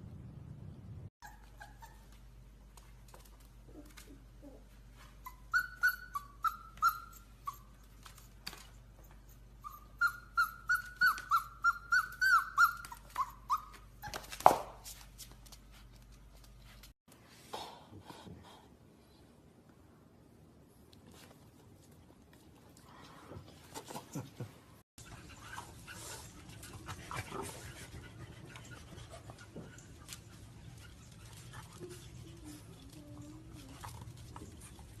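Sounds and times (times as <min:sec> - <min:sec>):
puppy whimpering: 0:01.2 - 0:02.3, 0:03.7 - 0:08.3, 0:09.0 - 0:14.4.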